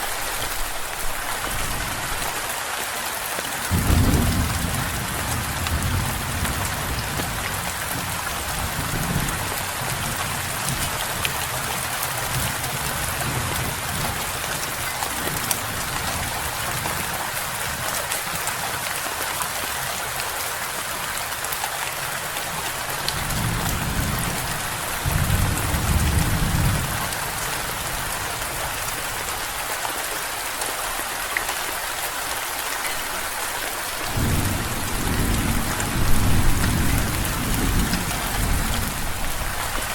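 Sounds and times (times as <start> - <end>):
steady rain falling: 0.0 - 39.9
thunder rumbling: 3.7 - 10.5, 34.1 - 39.6.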